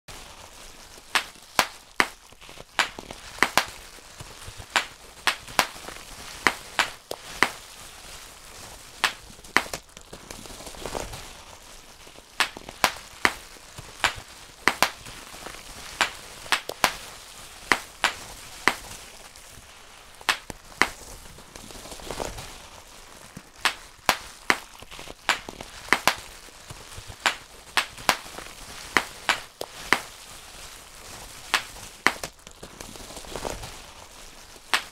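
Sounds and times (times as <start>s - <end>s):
bubble wrap popping: 0.1s - 34.9s.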